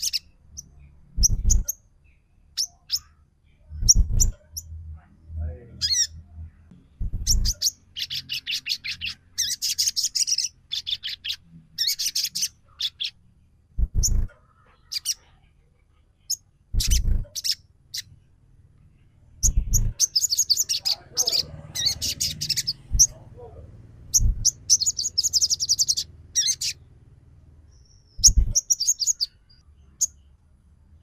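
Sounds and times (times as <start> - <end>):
dull low thumps: 1.1 - 1.7, 3.8 - 4.4, 6.5 - 7.6, 13.7 - 14.3, 16.7 - 17.3, 19.4 - 20.0, 22.8 - 23.2, 24.1 - 24.7.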